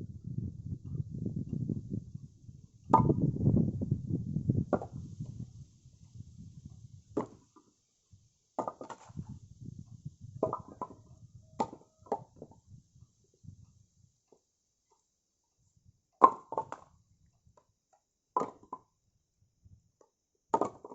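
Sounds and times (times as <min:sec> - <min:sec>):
wooden knocks of firewood: 0:02.9 - 0:03.2, 0:04.7 - 0:05.4, 0:07.2 - 0:07.7, 0:08.6 - 0:09.3, 0:10.4 - 0:12.6, 0:16.2 - 0:16.9, 0:18.4 - 0:18.9, 0:20.5 - 0:20.9.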